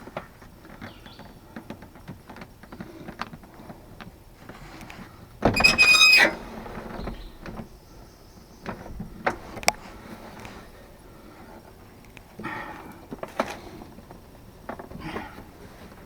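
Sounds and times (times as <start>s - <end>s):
loud squeal: 5.6s - 6.6s
light clicks and taps: 8.6s - 10.6s.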